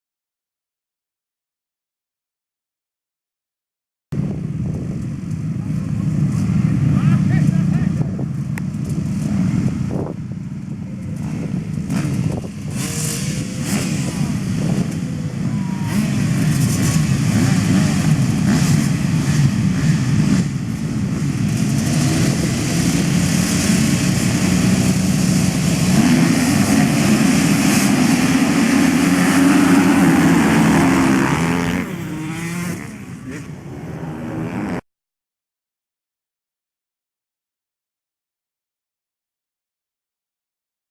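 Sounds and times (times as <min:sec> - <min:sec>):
motocross bikes revving: 0:04.2 - 0:34.8.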